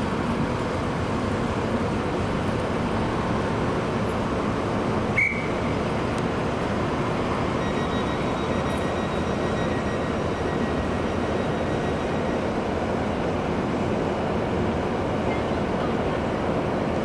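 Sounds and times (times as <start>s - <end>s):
train running past: 0.0s - 17.0s
faint high whine: 6.8s - 13.0s.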